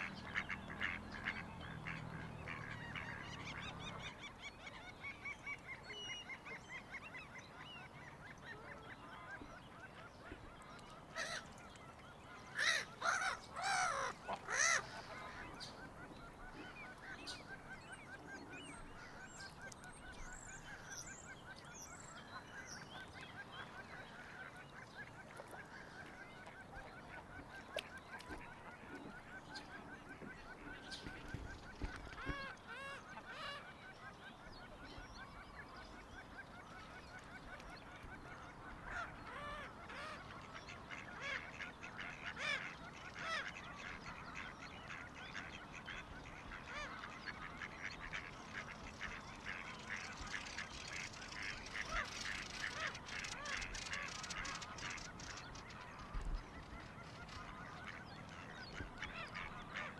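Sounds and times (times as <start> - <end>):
birds calling rapidly: 12.5 - 25.2, 38.9 - 59.9.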